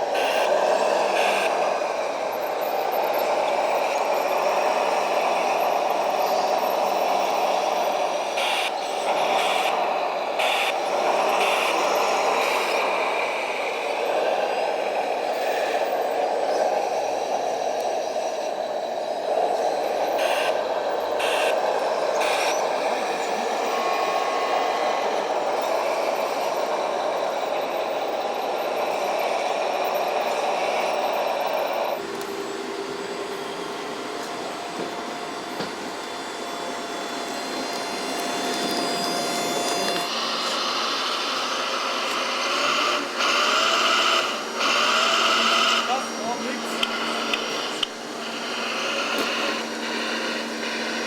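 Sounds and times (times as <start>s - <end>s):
short motor whines: 0.0s - 51.0s
small electric motors whirring: 0.0s - 51.0s.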